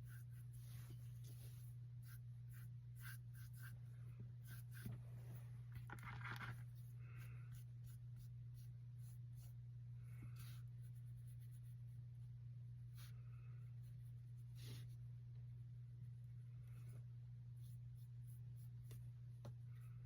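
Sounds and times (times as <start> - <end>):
paintbrush strokes on canvas: 0.0 - 5.7, 13.8 - 15.1
steady low hum: 0.0 - 20.0.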